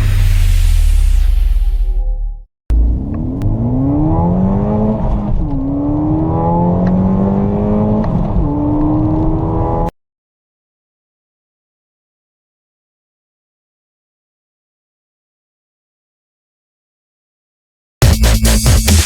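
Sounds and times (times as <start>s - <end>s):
car engine accelerating hard: 2.7s - 9.9s.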